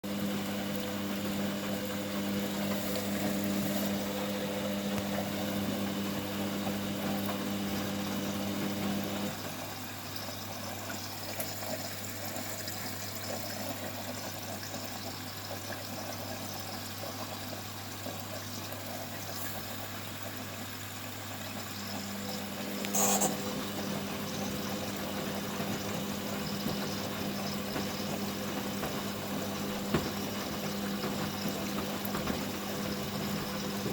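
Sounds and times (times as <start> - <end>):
washing machine motor hum: 0.0 - 33.9.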